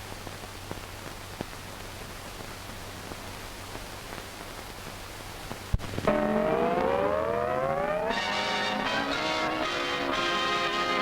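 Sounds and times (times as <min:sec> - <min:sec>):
faint crackles: 0:00.0 - 0:06.1
film soundtrack hiss: 0:00.0 - 0:11.0
low hum: 0:05.8 - 0:09.2.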